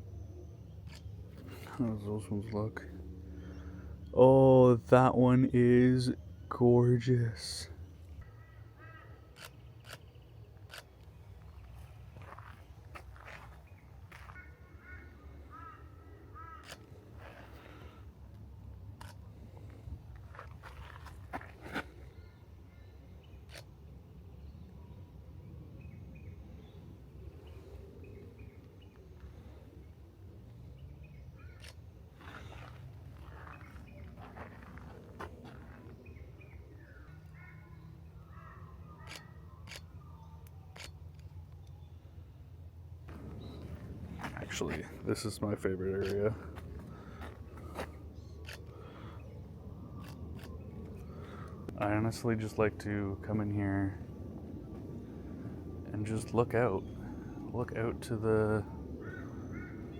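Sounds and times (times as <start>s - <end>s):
steady low rumble: 0.0s - 6.5s, 23.7s - 37.2s, 41.1s - 59.9s
bird calling: 7.5s - 18.0s, 30.8s - 41.0s, 43.1s - 51.8s, 58.6s - 59.9s
low steady rumble: 41.2s - 59.9s
birds chirping and whistling: 43.1s - 45.1s.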